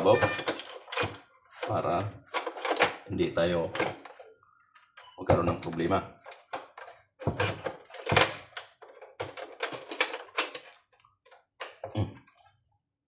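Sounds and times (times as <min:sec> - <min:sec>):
plastic parts clicking and tapping: 0:00.0 - 0:12.0.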